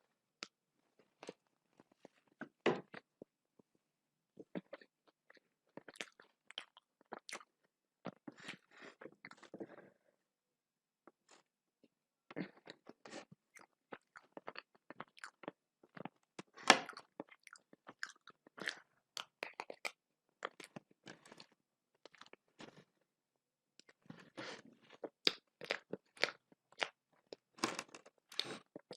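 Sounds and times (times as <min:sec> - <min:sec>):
crisp crunching and chewing: 0:12.4 - 0:22.9, 0:23.8 - 0:28.9.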